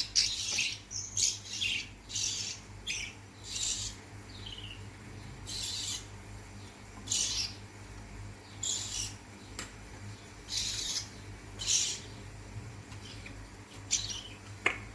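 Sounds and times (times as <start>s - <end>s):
chicks hissing begging calls: 1.2s - 4.8s, 5.4s - 6.2s, 8.6s - 9.3s, 10.4s - 12.2s.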